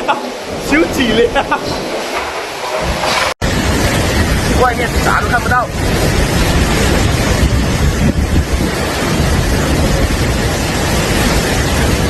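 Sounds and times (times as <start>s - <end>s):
strong wind on microphone: 2.7s - 12.0s.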